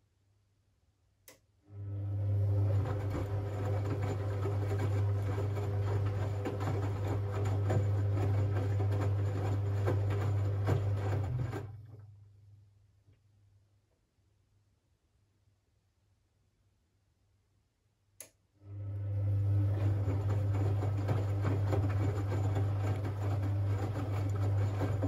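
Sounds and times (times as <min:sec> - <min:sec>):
washing machine humming: 0:01.7 - 0:12.2, 0:18.6 - 0:25.0.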